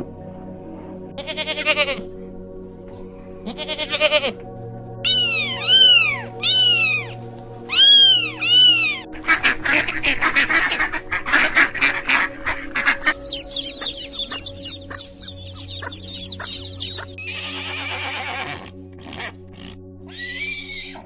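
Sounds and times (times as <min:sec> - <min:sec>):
background music: 0:00.0 - 0:21.0
kittens meowing: 0:05.0 - 0:09.0, 0:13.1 - 0:18.5
chickens chirping: 0:05.1 - 0:17.2
ducks quacking rapidly: 0:05.1 - 0:19.8.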